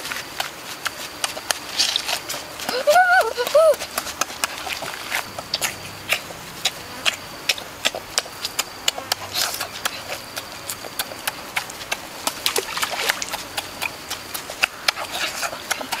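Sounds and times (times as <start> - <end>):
person chewing with lip smacks: 3.8 - 16.0.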